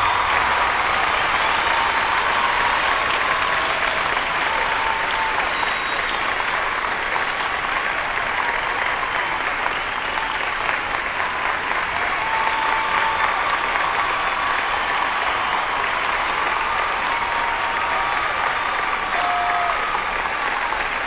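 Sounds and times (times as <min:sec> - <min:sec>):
crowd applauding: 0:00.0 - 0:21.0
crowd cheering: 0:00.0 - 0:21.0.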